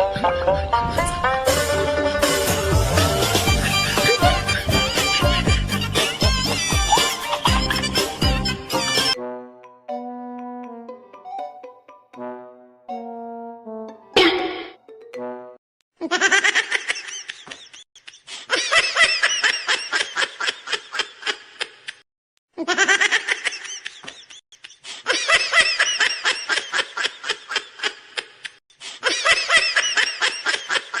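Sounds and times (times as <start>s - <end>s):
high-pitched giggling laughter: 3.4s - 8.3s, 16.0s - 22.0s, 22.6s - 31.0s.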